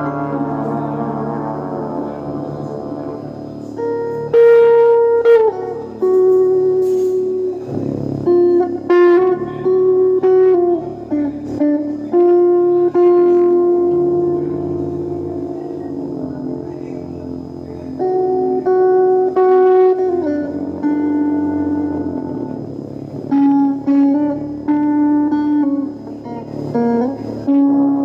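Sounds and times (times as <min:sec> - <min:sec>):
guitar slow melody: 0:00.0 - 0:28.0
held low chord: 0:00.0 - 0:28.0.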